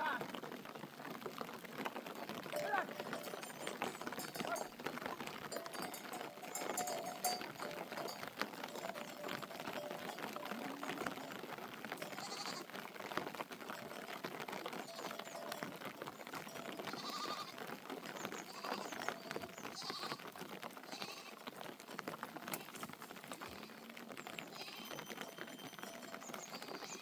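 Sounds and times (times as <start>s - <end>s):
dense patter of fine clicks: 0.0s - 27.0s
sheep bleating: 2.5s - 4.7s, 5.6s - 12.7s, 14.8s - 15.6s, 16.6s - 17.6s, 18.4s - 20.2s, 20.9s - 21.4s, 24.5s - 25.0s, 26.4s - 27.0s.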